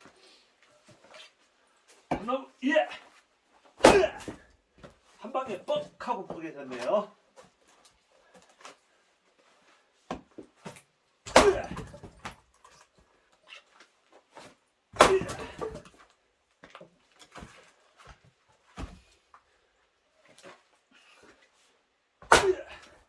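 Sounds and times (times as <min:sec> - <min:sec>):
axe splitting wood: 0:03.8 - 0:04.4, 0:11.3 - 0:12.4, 0:15.0 - 0:15.9, 0:22.2 - 0:23.0.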